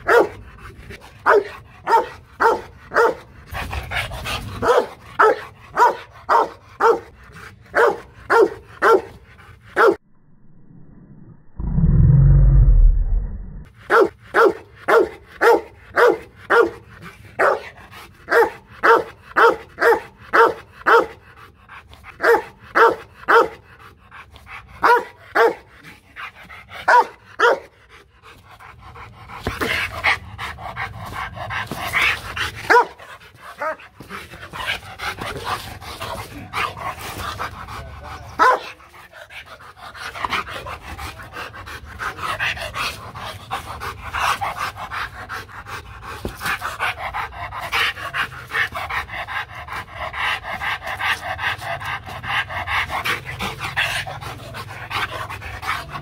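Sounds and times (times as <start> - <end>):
dog barking: 0.0 - 0.4, 1.2 - 3.2, 4.6 - 7.1, 7.8 - 9.1, 9.8 - 10.0, 13.9 - 16.8, 17.4 - 17.7, 18.3 - 21.2, 22.2 - 23.6, 24.8 - 25.7, 26.9 - 27.7, 32.7 - 33.0, 38.4 - 38.8
dog panting: 0.0 - 9.9, 13.8 - 56.0.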